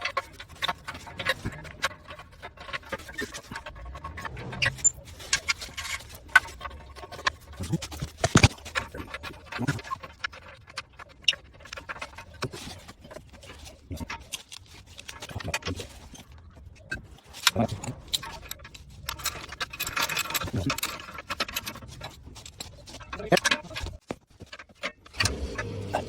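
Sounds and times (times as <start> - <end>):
hand tools clicking on metal: 16.9 - 26.0.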